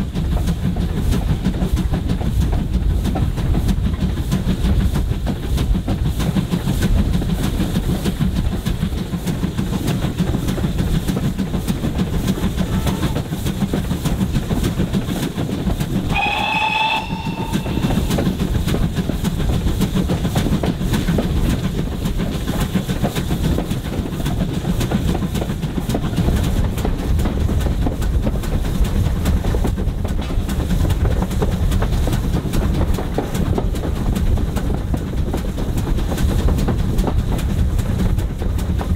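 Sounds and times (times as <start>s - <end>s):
train rumbling and clattering: 0.0s - 38.9s
train whistle: 12.6s - 13.2s, 16.1s - 18.6s.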